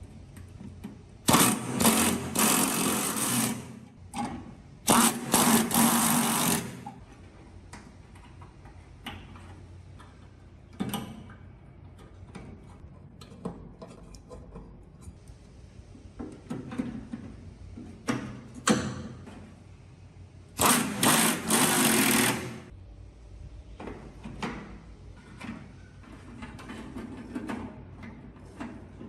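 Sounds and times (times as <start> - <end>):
small electric power tool motor: 20.6 - 22.6.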